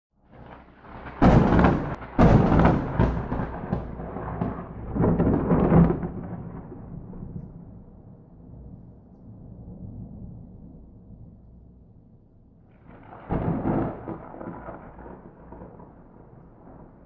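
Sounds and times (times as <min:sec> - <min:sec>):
low thunder rumble: 0:00.2 - 0:17.0
thunder crack: 0:00.3 - 0:08.8, 0:12.7 - 0:17.0.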